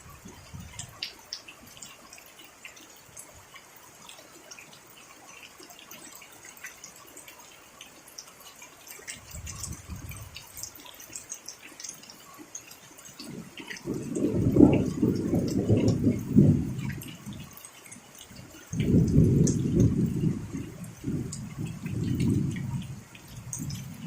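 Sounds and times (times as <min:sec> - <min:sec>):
rain dripping: 0:00.0 - 0:24.0
thunder rumbling: 0:13.3 - 0:17.5, 0:18.7 - 0:24.0.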